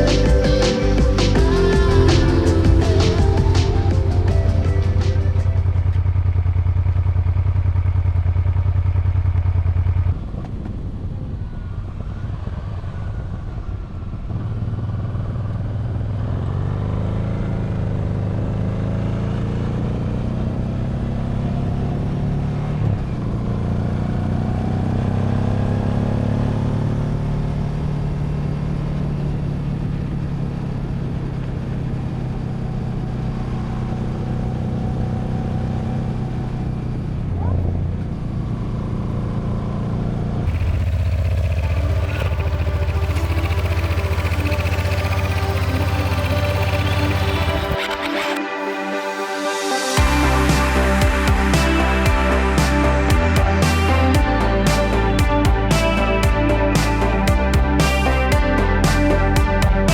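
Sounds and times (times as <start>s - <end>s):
motorcycle engine running: 26.8s - 48.4s, 50.0s - 59.9s.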